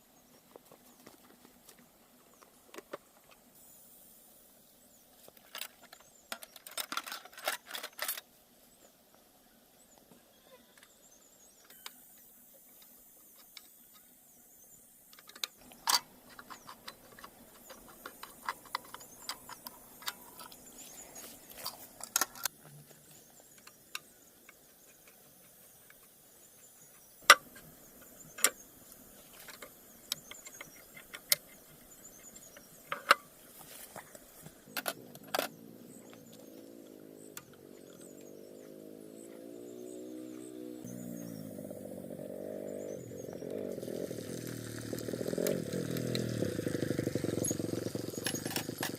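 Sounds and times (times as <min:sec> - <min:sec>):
hard objects clicking and knocking: 0:15.2 - 0:20.7, 0:47.4 - 0:48.9.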